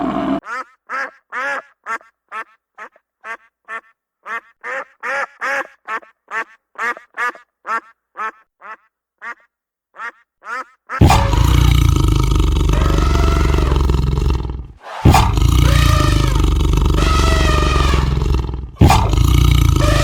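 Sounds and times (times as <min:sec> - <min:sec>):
animal short pitched calls: 0:12.7 - 0:20.0.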